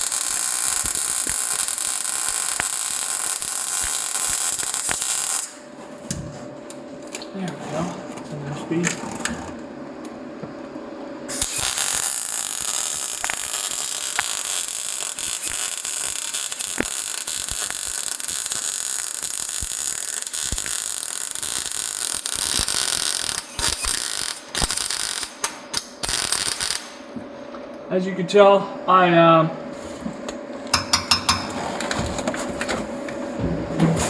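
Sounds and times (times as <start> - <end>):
welder arc crackling: 0.0 - 5.6, 11.3 - 27.1.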